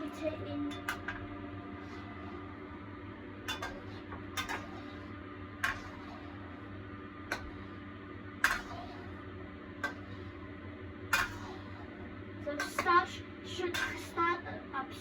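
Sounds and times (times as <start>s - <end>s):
low hum: 0.0s - 15.0s
metal spatula scraping a wok: 3.5s - 6.4s, 8.4s - 9.2s, 11.2s - 11.7s, 13.7s - 14.2s.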